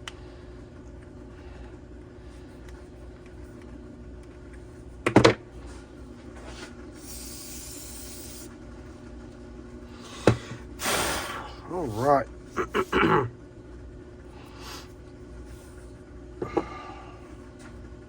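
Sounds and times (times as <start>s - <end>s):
steady low hum: 0.0s - 18.0s
spray hiss: 7.0s - 8.5s, 10.8s - 11.4s.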